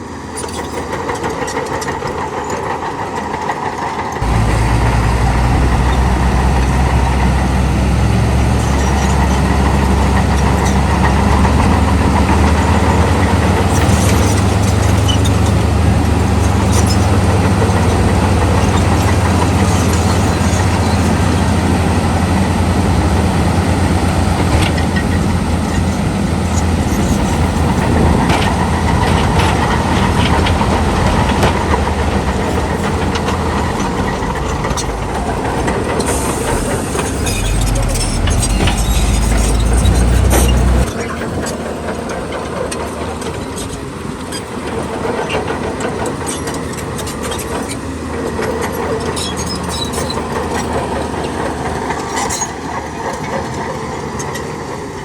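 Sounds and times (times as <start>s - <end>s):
diesel machinery engine hum: 0.0s - 55.0s
sharp metallic clanks: 31.2s - 40.9s.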